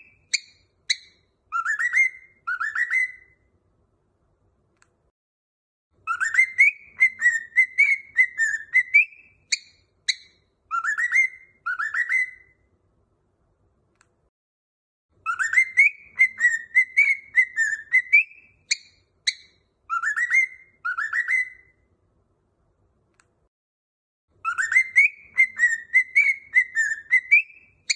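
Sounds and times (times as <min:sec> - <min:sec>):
cockatiel whistling a tune: 0:00.0 - 0:03.5, 0:06.0 - 0:12.6, 0:15.2 - 0:21.8, 0:24.4 - 0:27.9.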